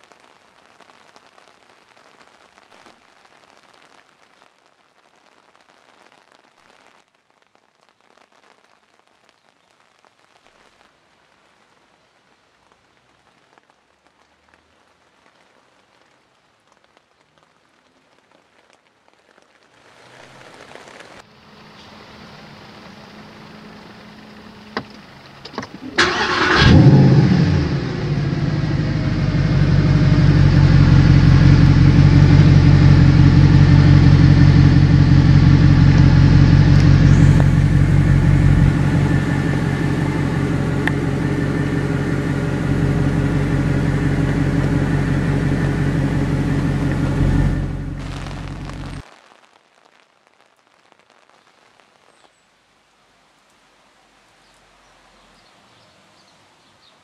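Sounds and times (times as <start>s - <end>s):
car engine starting and idling: 21.7s - 49.0s
car ignition clicks: 24.8s - 26.9s.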